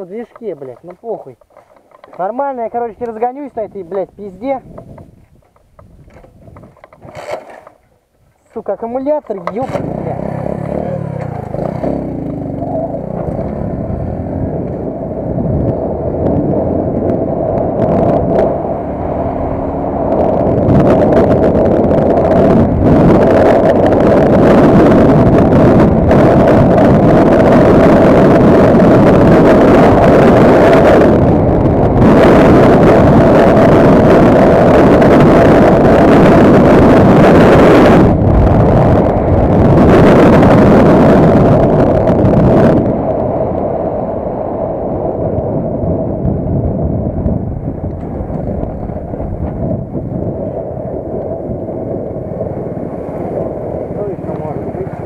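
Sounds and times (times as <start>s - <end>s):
small vehicle engine running: 9.4s - 31.2s.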